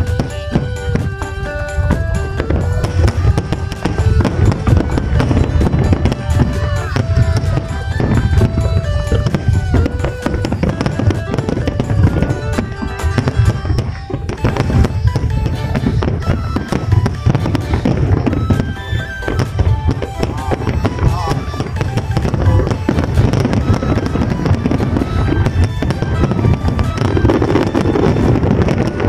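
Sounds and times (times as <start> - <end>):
fireworks banging: 0.0 - 29.0
music playing: 0.0 - 29.0.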